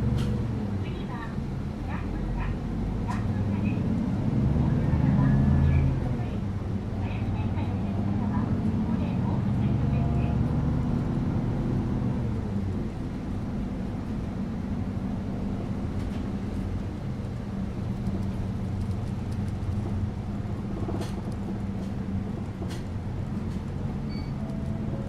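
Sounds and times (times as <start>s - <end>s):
bus engine humming: 0.0s - 25.0s
road rumble: 0.0s - 25.0s.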